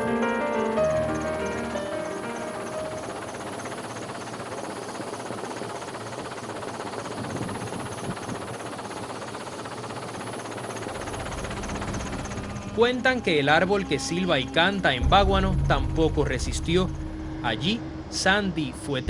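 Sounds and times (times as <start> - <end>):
music: 0.0 - 4.0, 11.2 - 19.0
rushing outdoor noise: 0.0 - 19.0.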